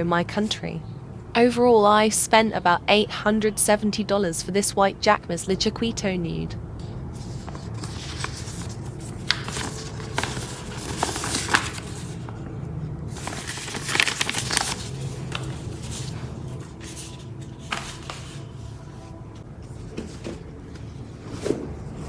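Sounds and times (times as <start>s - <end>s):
steady low hum: 0.0s - 22.0s
packaging rustling and crinkling: 7.2s - 12.4s, 13.1s - 18.6s.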